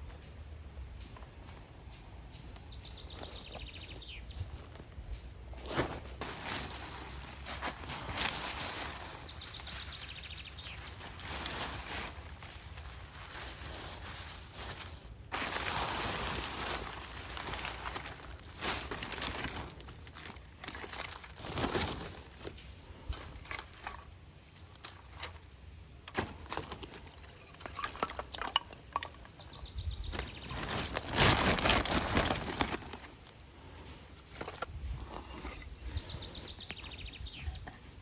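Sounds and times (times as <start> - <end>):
rustling and crinkling at campfire: 0.0 - 38.0.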